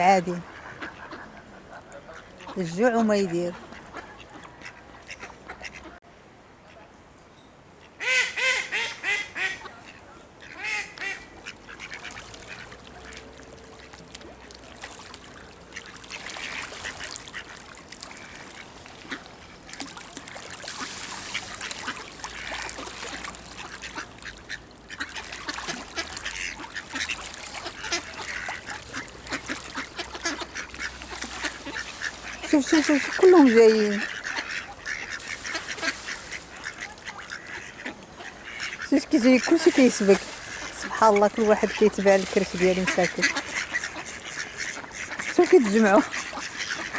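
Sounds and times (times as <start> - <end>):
ducks quacking: 0.0 - 6.0, 7.8 - 14.4, 15.3 - 46.9
water splashing: 0.0 - 6.0, 9.7 - 46.9.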